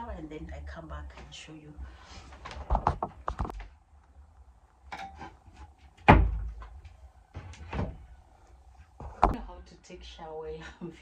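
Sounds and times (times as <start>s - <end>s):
sharp knocks and thumps: 4.9s - 6.8s, 9.0s - 9.4s.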